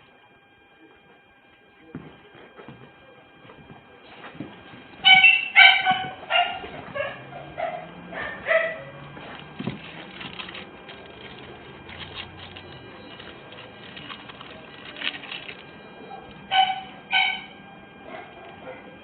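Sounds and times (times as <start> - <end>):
small dog barking: 5.0 - 9.0, 16.1 - 19.0.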